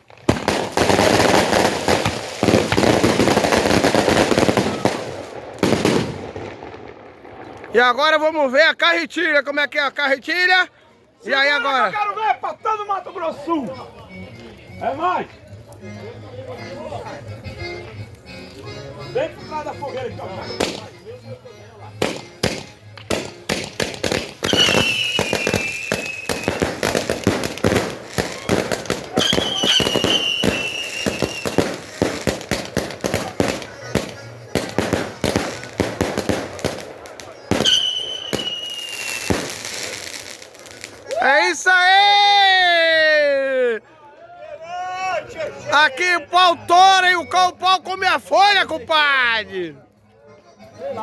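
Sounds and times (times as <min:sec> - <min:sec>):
firecracker barrage: 0:00.0 - 0:08.3, 0:20.6 - 0:21.0, 0:21.9 - 0:43.8
falling firework whistle: 0:24.4 - 0:27.1, 0:28.2 - 0:31.8, 0:37.5 - 0:39.9.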